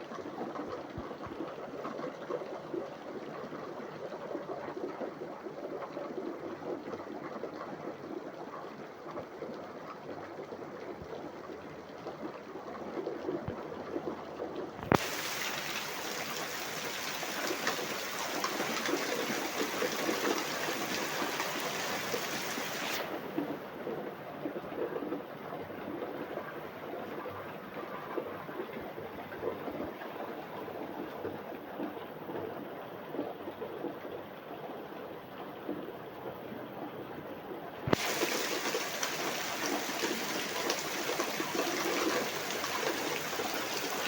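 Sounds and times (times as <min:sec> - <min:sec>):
steady rain: 0:14.9 - 0:31.2, 0:37.9 - 0:44.0.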